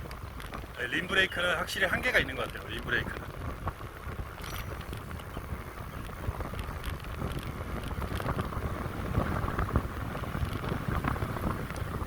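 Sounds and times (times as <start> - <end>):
bicycle tyres rumbling on road: 0.0 - 12.0
small knocks from road: 0.0 - 12.0
wind rushing over microphone: 0.0 - 12.0.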